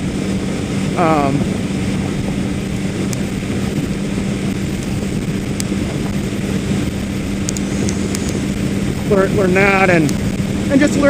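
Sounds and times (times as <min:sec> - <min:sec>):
road and wind noise: 0:00.0 - 0:11.0
vehicle engine running steadily: 0:00.0 - 0:11.0.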